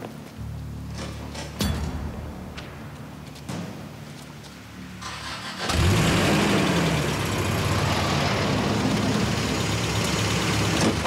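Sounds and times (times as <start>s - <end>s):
vehicle engine revving: 5.0s - 11.0s.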